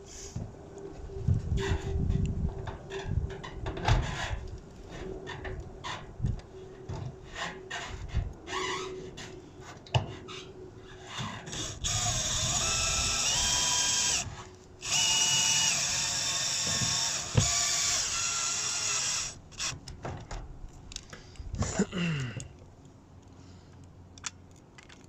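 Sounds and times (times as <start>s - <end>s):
power tool motor whining: 11.5s - 19.8s.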